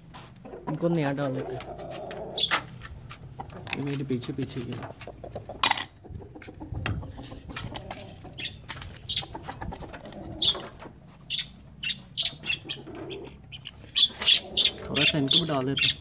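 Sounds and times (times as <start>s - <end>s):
high bird chirps: 8.2s - 9.4s, 11.3s - 16.0s.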